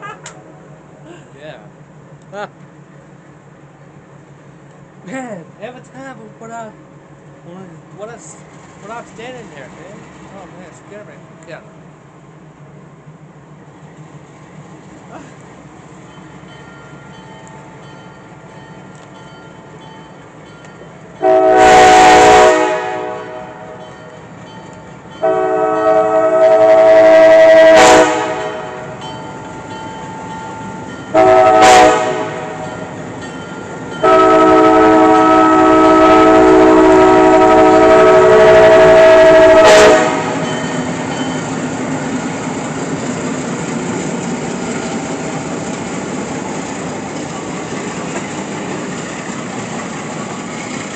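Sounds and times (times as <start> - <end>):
diesel engine low rumble: 0.0 - 50.9
locomotive air horn blasts: 21.2 - 23.8, 25.2 - 29.0, 31.1 - 32.6, 34.0 - 40.5.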